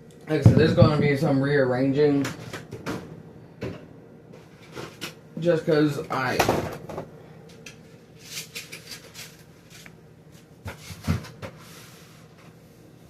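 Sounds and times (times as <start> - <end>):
items knocking on fridge shelves: 0.3 - 1.3, 6.3 - 7.1, 10.6 - 11.6.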